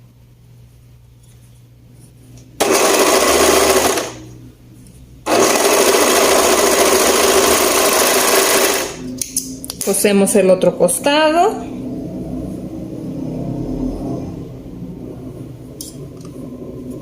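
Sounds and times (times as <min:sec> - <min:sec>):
electric sewing machine stitching: 0:02.6 - 0:04.3, 0:05.3 - 0:09.0.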